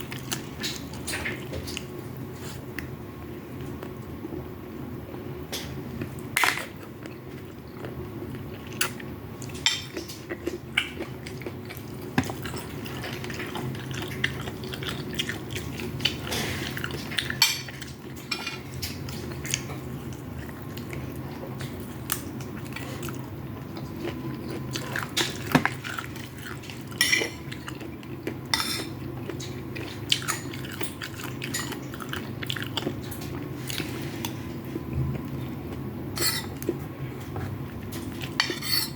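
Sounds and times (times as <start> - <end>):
steady low hum: 0.0 - 38.9
chewing food: 5.6 - 38.6
cutlery clinking on a plate: 18.3 - 18.6.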